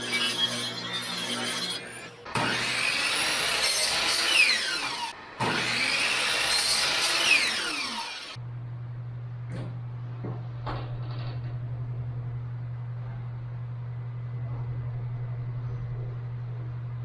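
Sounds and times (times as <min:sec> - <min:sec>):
tool cutting wood: 0:00.0 - 0:08.4
low hum: 0:08.4 - 0:17.0.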